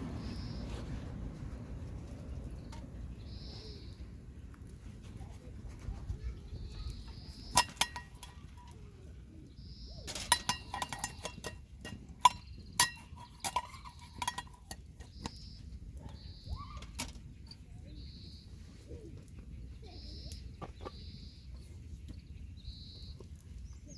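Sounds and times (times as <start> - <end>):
tableware and utensils clinking: 10.1 - 14.9.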